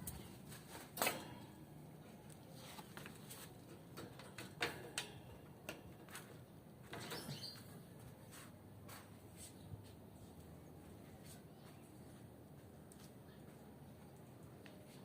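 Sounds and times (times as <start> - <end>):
light clicks in a wire cage: 2.3 - 6.4.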